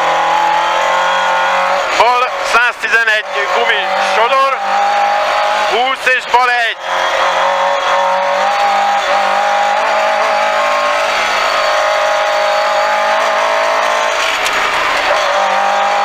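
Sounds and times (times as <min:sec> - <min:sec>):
car engine at high revs: 0:00.0 - 0:16.0
tyres rumbling on gravel: 0:12.8 - 0:16.0.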